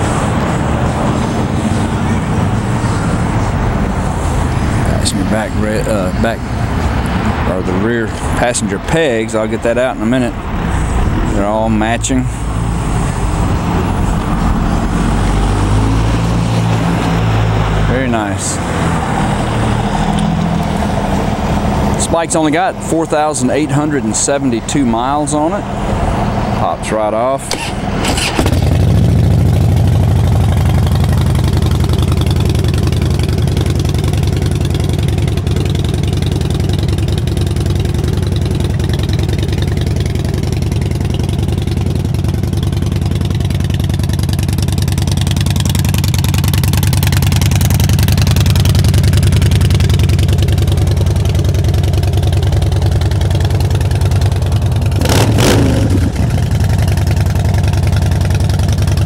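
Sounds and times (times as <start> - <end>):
motorcycle engine idling: 27.6 - 59.0.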